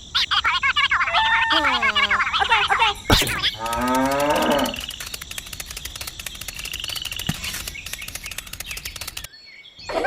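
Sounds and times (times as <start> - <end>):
fast even ticking: 3.1 - 9.3
cow mooing: 3.6 - 4.9.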